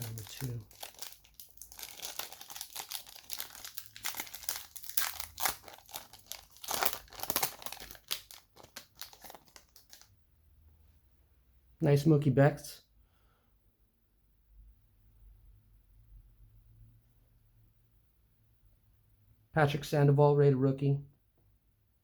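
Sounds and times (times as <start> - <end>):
foil wrapper crinkling: 0.0 - 10.1.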